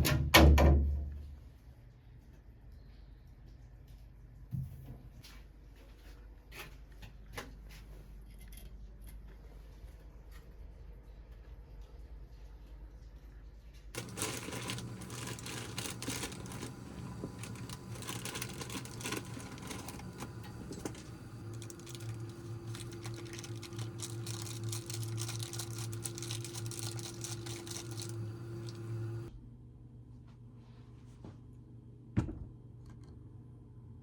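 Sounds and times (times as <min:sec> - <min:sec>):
low steady hum: 0:08.3 - 0:34.0
rapid clicking and rustling: 0:14.0 - 0:29.3.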